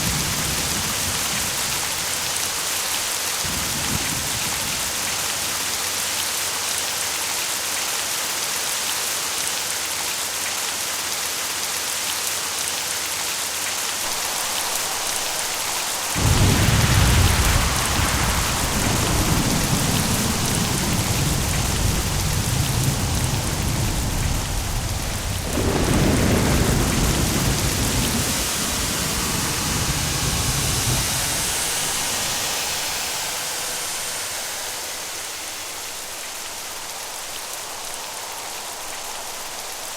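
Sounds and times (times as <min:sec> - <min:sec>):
heavy rain: 0:00.0 - 0:39.9
thunder rolling: 0:14.1 - 0:39.9.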